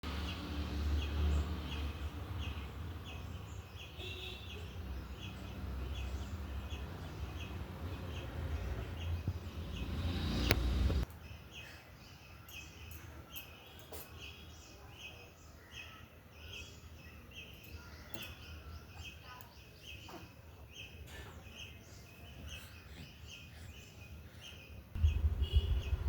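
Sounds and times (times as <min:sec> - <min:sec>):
other birds chirping: 0:00.2 - 0:26.0
low rumbling noise: 0:25.0 - 0:26.0.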